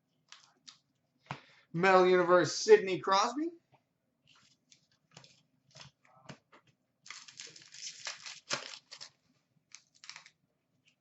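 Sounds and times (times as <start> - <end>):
cards rustling: 4.3 - 6.4, 7.0 - 10.4.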